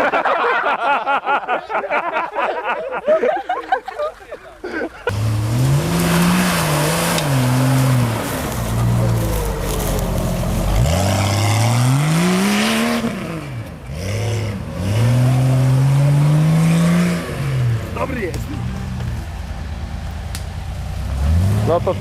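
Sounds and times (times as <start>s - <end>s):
engine revving hard: 5.1s - 17.8s, 21.1s - 22.0s.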